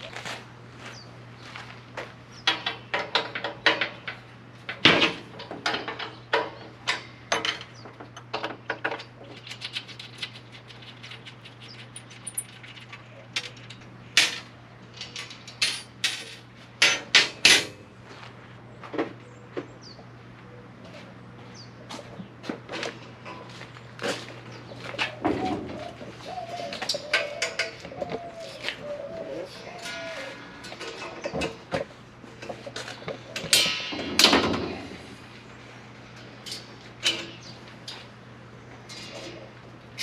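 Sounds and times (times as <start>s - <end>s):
steady low hum: 0.0s - 40.0s
metal tools clinking and clanking: 10.8s - 17.8s, 26.6s - 28.3s, 29.6s - 31.8s, 36.2s - 38.1s.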